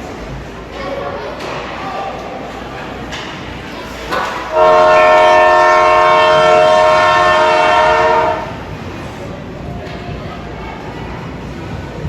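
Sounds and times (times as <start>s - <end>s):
arena horn blast: 4.5s - 8.6s.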